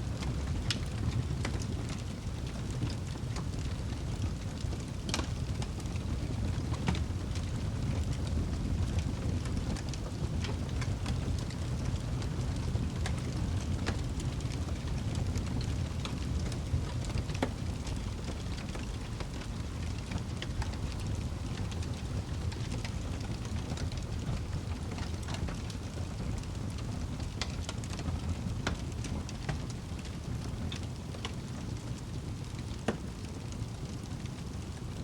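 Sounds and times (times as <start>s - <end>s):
wood fire crackling and popping: 0.0s - 35.0s.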